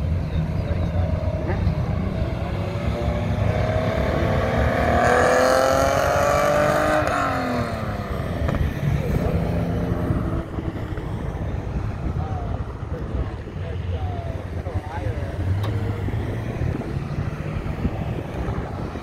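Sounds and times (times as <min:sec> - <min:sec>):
car accelerating past: 0:00.9 - 0:10.8.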